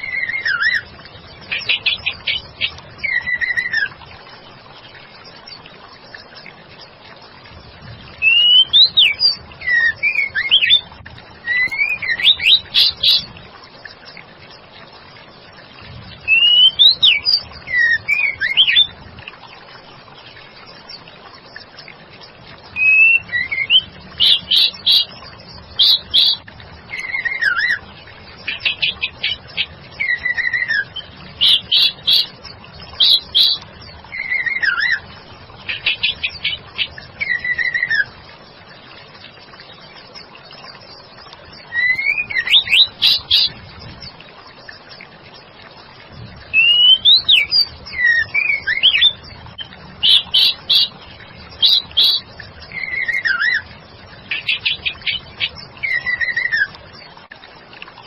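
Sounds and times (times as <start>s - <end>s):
bird whistling and trilling: 0.0s - 0.9s, 1.5s - 4.0s, 8.2s - 13.3s, 16.2s - 18.9s, 22.7s - 25.1s, 25.8s - 27.8s, 28.5s - 32.3s, 33.0s - 35.0s, 35.7s - 38.1s, 41.7s - 43.5s, 46.5s - 49.3s, 50.0s - 50.9s, 51.6s - 53.6s, 54.3s - 56.7s.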